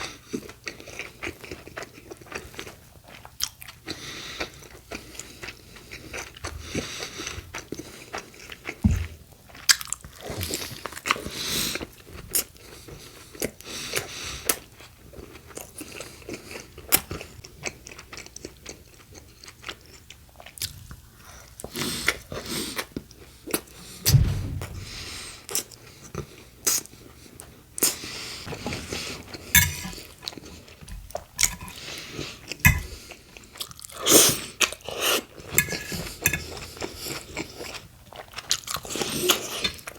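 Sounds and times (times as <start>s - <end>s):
dull low thumps: 24.0s - 25.4s.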